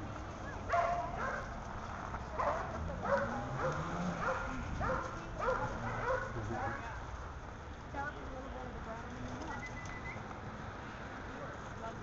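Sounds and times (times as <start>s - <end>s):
dog barking: 0.7s - 1.5s, 2.4s - 6.4s.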